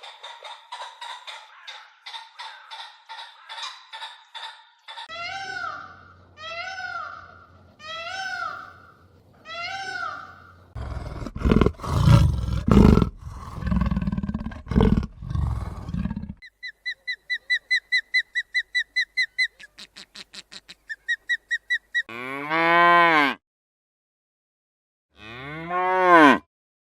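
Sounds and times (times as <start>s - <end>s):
animal whining calls: 10.8s - 16.4s
deep roaring and grunting: 10.8s - 16.4s
cow mooing: 22.1s - 23.4s, 25.2s - 26.4s.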